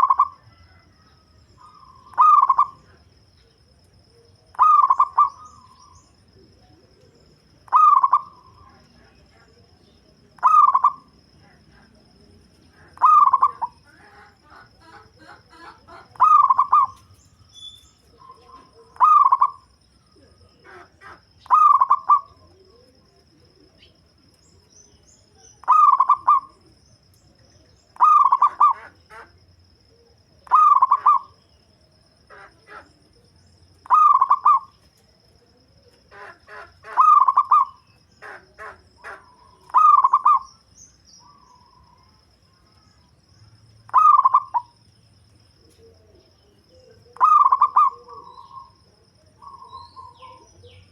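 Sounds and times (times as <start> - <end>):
dove cooing: 0.0 - 3.0, 4.1 - 17.2, 18.0 - 24.6, 25.5 - 31.4, 32.2 - 40.6, 43.9 - 44.7, 45.6 - 50.9.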